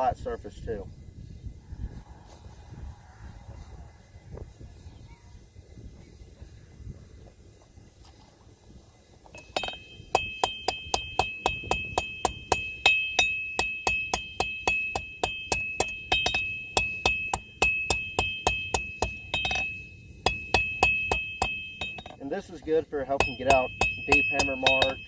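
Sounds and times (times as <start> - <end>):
anvil ringing: 9.4 - 25.0
hammer striking steel on anvil: 9.4 - 25.0.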